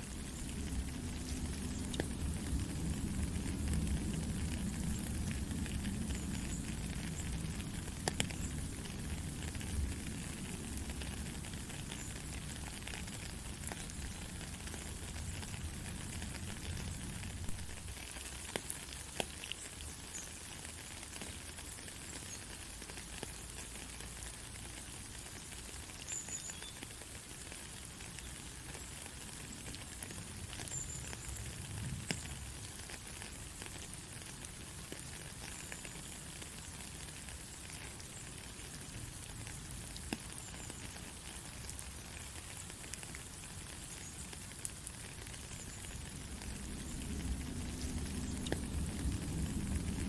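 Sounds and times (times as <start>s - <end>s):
heavy rain: 0.0s - 50.0s
thunder rumbling: 46.1s - 50.0s.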